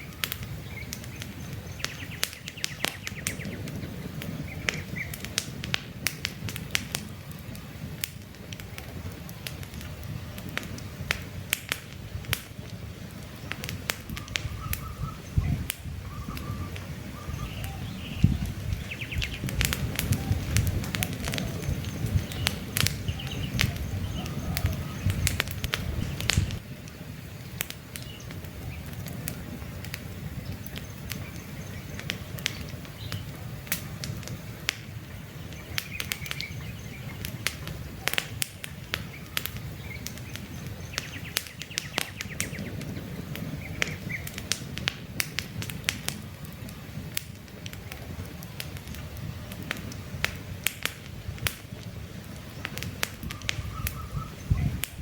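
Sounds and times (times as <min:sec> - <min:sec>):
campfire crackling: 0:00.0 - 0:55.0
low rush of flames: 0:00.0 - 0:55.0
faint bird chirps: 0:14.2 - 0:19.4, 0:52.5 - 0:54.8.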